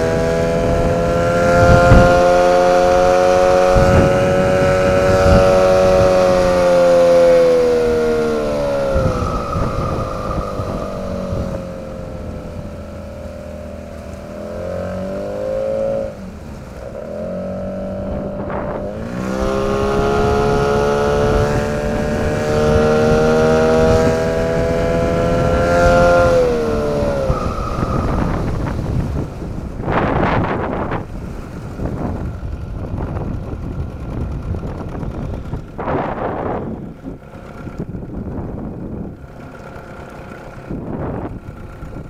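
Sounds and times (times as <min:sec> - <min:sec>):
outboard motor revving: 0:00.0 - 0:42.0
high whistle: 0:08.5 - 0:12.0, 0:27.0 - 0:29.0.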